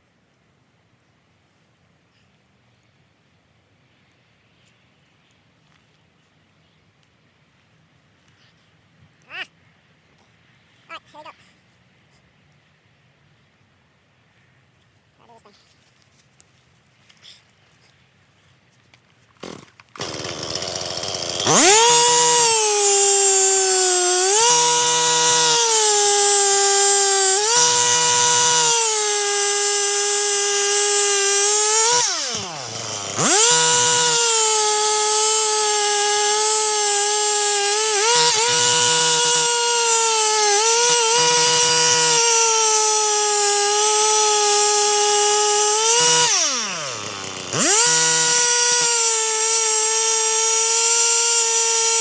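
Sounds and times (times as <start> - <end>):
chainsaw cutting wood: 19.4 - 52.0.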